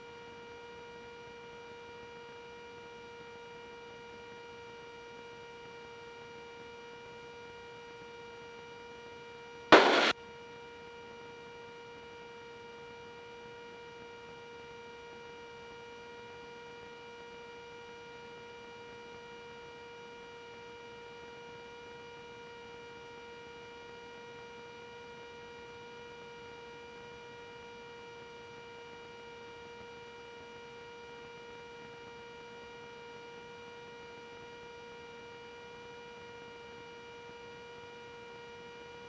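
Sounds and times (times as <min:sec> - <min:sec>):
loud crackle of noise: 0:09.7 - 0:10.1
electrical hum on intercom: 0:09.8 - 0:10.1.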